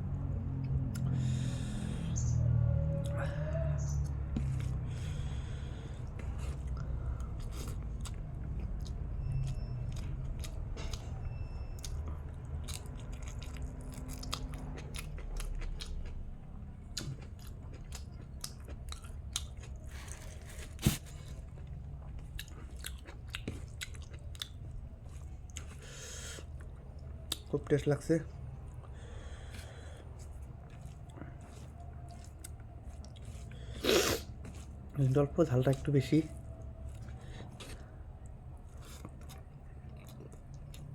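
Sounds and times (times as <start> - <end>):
steady low hum: 0.0 - 35.1
person chewing food: 0.5 - 40.9.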